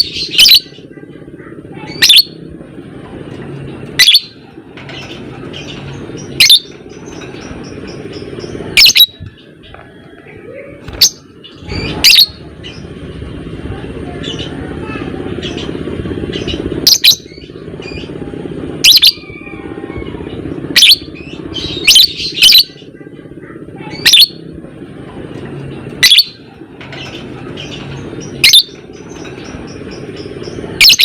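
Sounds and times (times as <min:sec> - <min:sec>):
low buzzing bird chatter: 0:00.0 - 0:31.0
bird shrill squawks: 0:04.0 - 0:04.4, 0:23.9 - 0:24.4, 0:26.0 - 0:26.4, 0:28.4 - 0:28.8.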